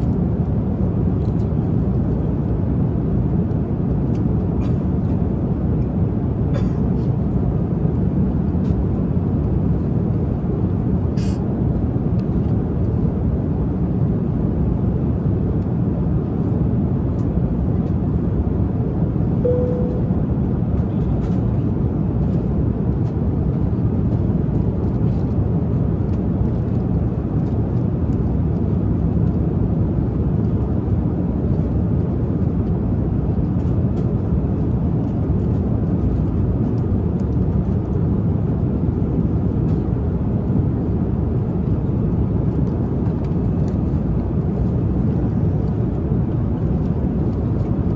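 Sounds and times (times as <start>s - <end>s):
airliner cabin drone: 0.0s - 47.9s
short tone: 19.4s - 20.3s.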